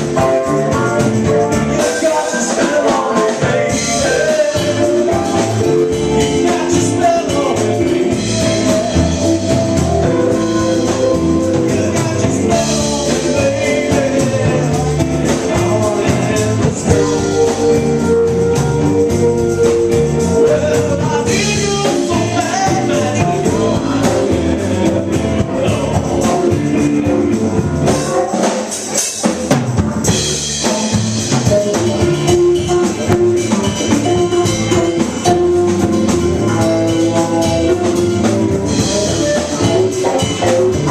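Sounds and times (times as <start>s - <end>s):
drums: 0.0s - 40.9s
guitar: 0.0s - 40.9s
person singing: 0.1s - 28.4s.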